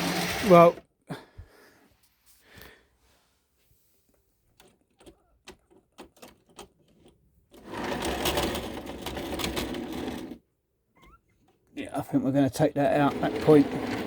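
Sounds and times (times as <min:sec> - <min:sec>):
model train motor whirring: 0:00.0 - 0:00.8, 0:13.0 - 0:14.0.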